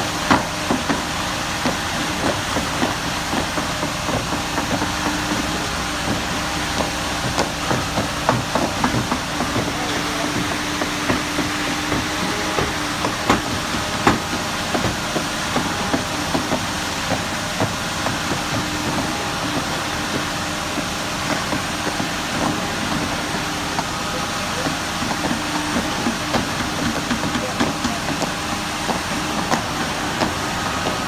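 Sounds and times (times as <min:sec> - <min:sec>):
heavy machine engine running: 0:00.0 - 0:31.0
irregular knocks and clanks: 0:00.2 - 0:31.0.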